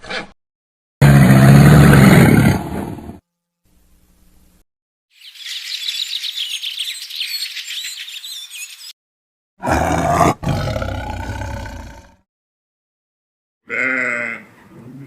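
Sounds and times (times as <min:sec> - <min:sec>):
deep animal roar: 0:01.0 - 0:03.2, 0:09.6 - 0:12.2
birds chirping and twittering: 0:05.1 - 0:09.0.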